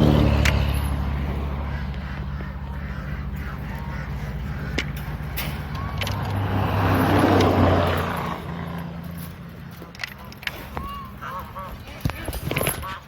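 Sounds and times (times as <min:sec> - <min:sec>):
low engine hum: 0:00.0 - 0:12.1
road vehicle passing: 0:00.0 - 0:13.0.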